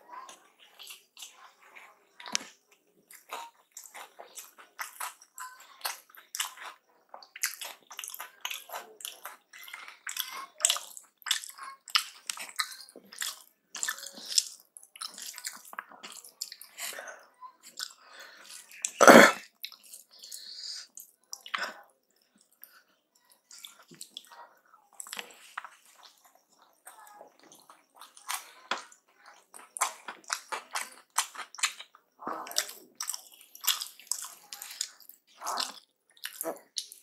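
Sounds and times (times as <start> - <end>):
wet chewing mouth clicks: 17.6 - 37.0.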